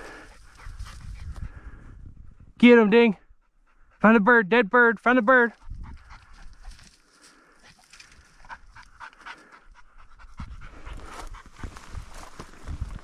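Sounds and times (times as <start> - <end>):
dog panting hard: 0.0 - 2.6, 3.2 - 4.2, 5.5 - 12.3.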